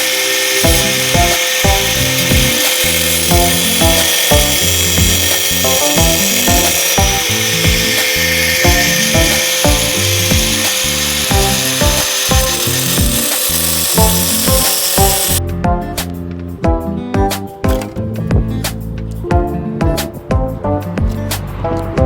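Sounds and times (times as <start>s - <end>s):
power tool grinding metal: 0.0s - 15.4s
background music with beat: 0.0s - 22.0s.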